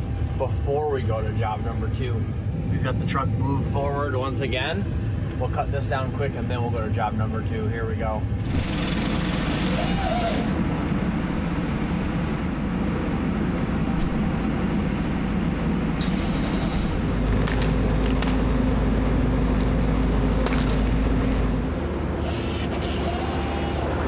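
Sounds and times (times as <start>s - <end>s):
engine running: 0.0s - 24.0s
sharp cracks: 16.7s - 21.7s.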